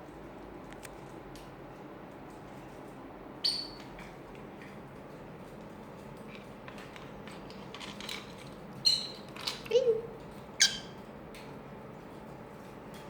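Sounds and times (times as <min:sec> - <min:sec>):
lovebird squawk: 0:03.4 - 0:03.8, 0:10.6 - 0:11.0.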